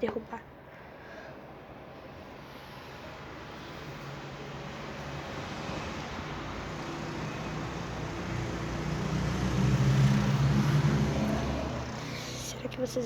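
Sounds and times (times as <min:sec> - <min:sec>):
vehicle engine passing: 0:03.7 - 0:13.0.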